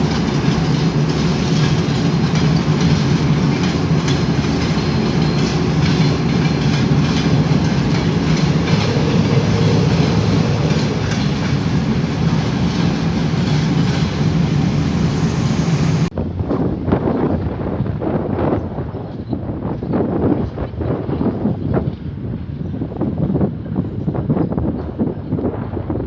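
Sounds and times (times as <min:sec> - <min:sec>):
wheels clicking over rail joints: 0:00.0 - 0:16.1
train rumbling past: 0:00.0 - 0:18.3
wind noise: 0:00.0 - 0:26.0.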